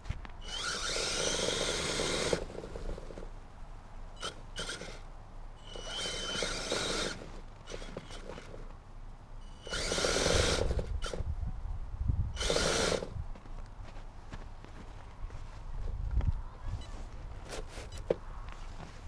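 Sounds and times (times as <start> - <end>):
toy vehicle motor whining: 0.4 - 3.3, 4.2 - 8.7, 9.4 - 11.3, 12.4 - 13.2.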